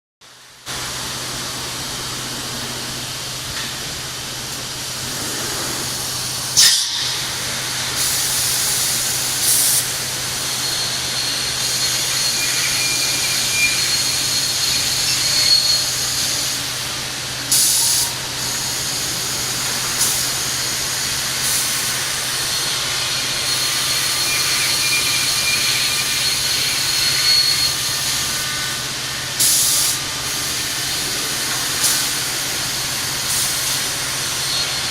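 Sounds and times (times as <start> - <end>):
high-pitched whine: 0.4 - 34.9
sharp hisses: 5.0 - 16.8.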